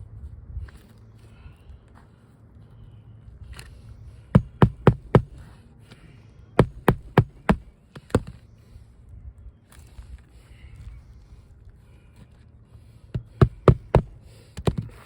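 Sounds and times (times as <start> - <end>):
hammer driving nails: 4.4 - 5.4, 6.6 - 8.4, 13.2 - 14.9.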